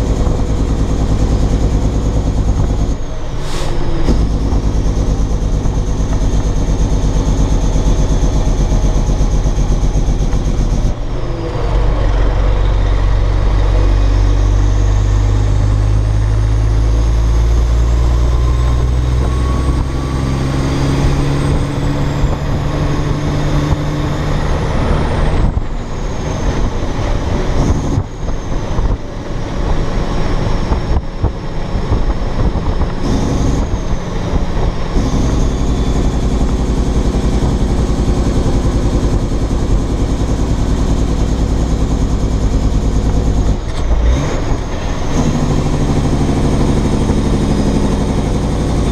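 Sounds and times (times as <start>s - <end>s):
truck diesel engine pulling: 0.0s - 48.9s.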